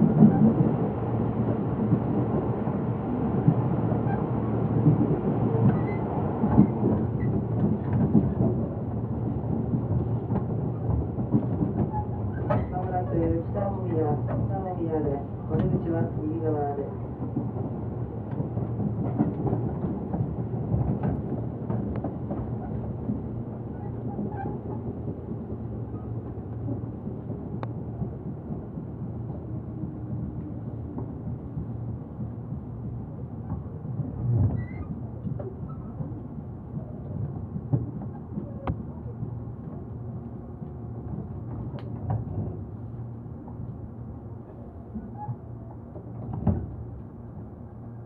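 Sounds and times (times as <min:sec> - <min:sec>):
train rumbling on rails: 0:00.0 - 0:48.0.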